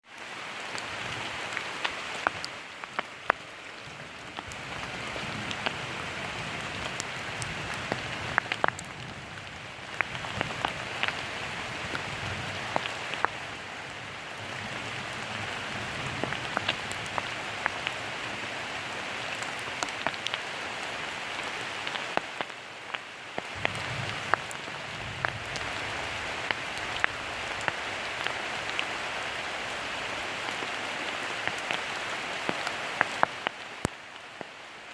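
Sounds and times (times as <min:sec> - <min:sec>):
raindrops ticking on surfaces: 0:00.0 - 0:34.9
steady rain hiss: 0:00.0 - 0:34.9.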